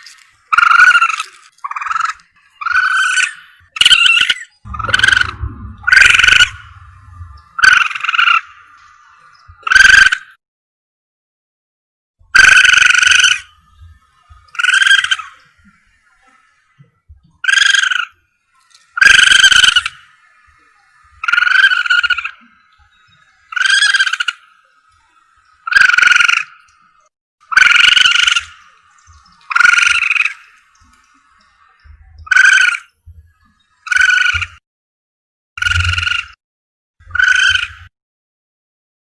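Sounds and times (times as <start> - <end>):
animal lure call cries: 23.4 - 24.5, 27.5 - 28.7, 29.5 - 30.6, 32.2 - 32.9.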